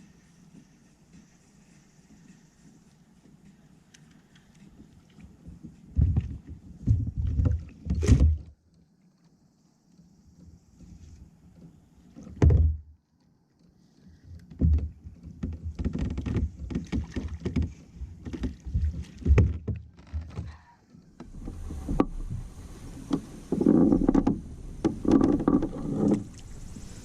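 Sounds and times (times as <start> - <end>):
knocks on plastic kayak hull: 14.6 - 19.8.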